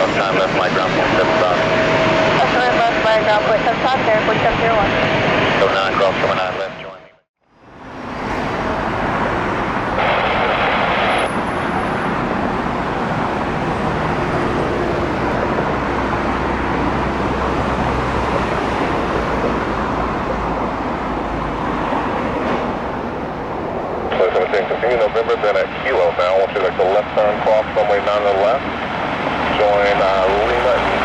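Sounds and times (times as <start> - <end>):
jet engines rushing: 0.0 - 7.0, 7.7 - 31.0
radio static hiss: 0.0 - 7.1, 9.9 - 11.8, 24.1 - 28.6, 29.5 - 31.0.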